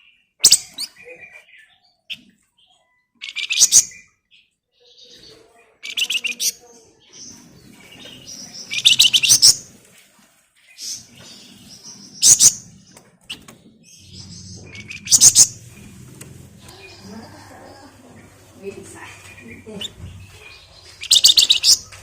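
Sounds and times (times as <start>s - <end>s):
soft bird chirps: 0.0s - 22.0s.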